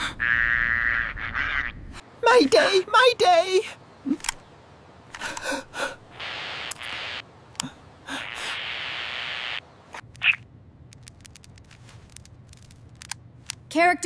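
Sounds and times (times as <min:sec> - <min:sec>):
steady hisses: 0:05.0 - 0:09.7
breathy gasps: 0:05.2 - 0:06.0.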